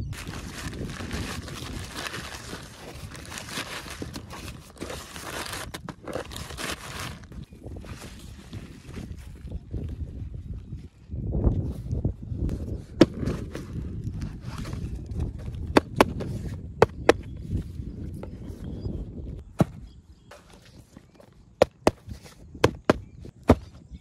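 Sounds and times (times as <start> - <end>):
packaging rubbing and rustling: 0.1 - 9.0.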